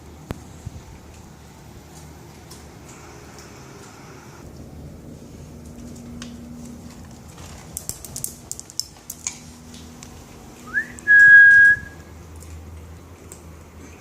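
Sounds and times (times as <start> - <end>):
person whistling: 10.7 - 12.0.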